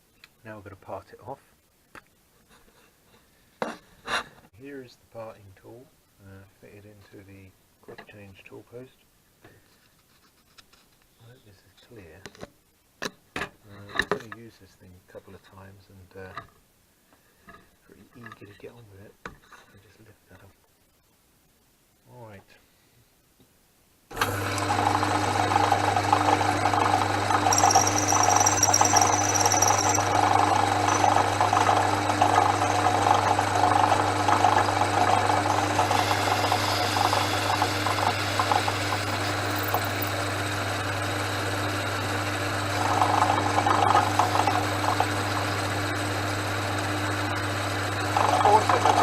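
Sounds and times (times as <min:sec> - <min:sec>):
lathe motor humming: 0:24.1 - 0:49.0
tool scraping spinning metal bar: 0:27.3 - 0:40.2.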